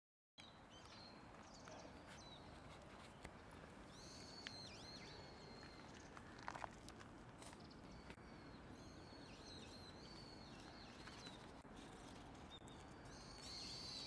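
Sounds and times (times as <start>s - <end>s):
low steady background noise: 0.4s - 14.0s
high whistled bird calls: 3.9s - 6.0s, 12.5s - 14.0s.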